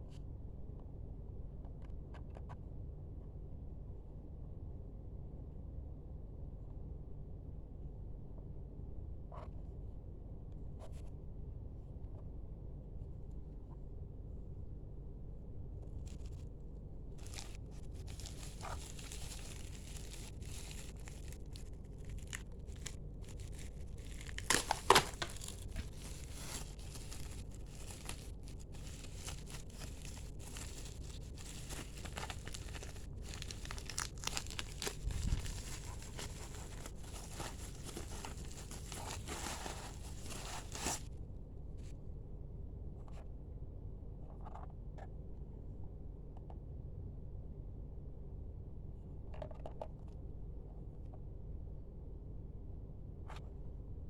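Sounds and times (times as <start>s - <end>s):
steady low hum: 0.0s - 49.4s
packaging crinkling and tearing: 17.2s - 41.1s.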